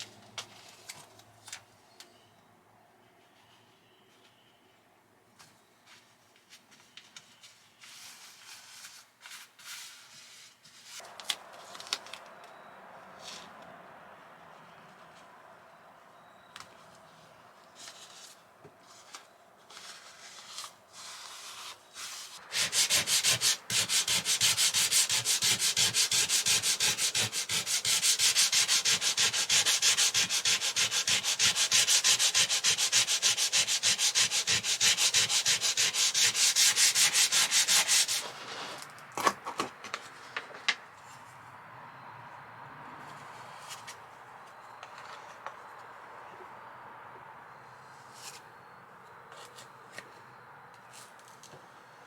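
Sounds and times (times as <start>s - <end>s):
hand sanding a surface: 20.1s - 38.8s.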